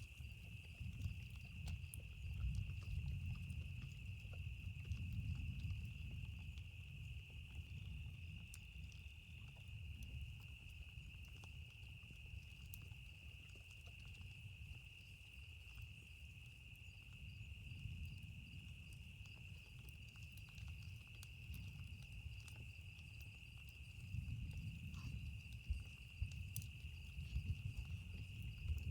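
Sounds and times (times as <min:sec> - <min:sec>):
campfire crackling: 0:00.0 - 0:28.9
distant thunder rumble: 0:24.1 - 0:28.9.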